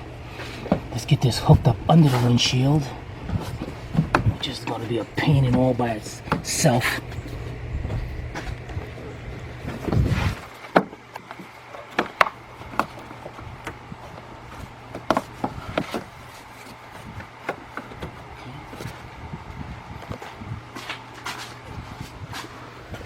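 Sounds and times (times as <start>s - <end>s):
steady low hum: 0.0s - 23.0s
trim panel clicks and knocks: 3.2s - 9.0s.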